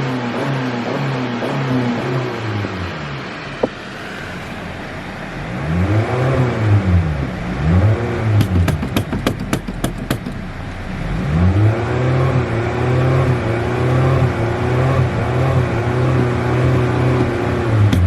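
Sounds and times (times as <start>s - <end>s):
car engine revving: 0.0s - 18.0s
sharp clicks or pops: 8.4s - 10.4s.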